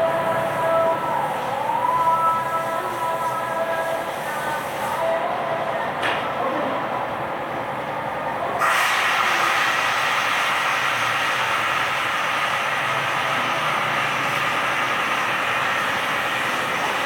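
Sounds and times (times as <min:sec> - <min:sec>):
car wash equipment hissing: 0:00.0 - 0:17.0.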